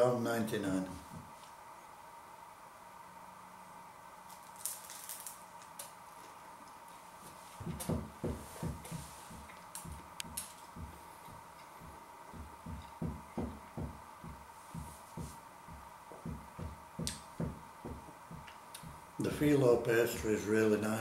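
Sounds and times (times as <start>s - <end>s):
crisp pastry crackling: 4.3s - 6.4s.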